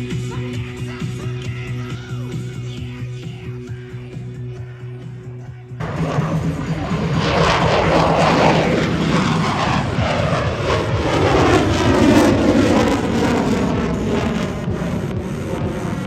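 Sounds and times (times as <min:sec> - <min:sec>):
jet passing overhead: 0:05.8 - 0:16.0.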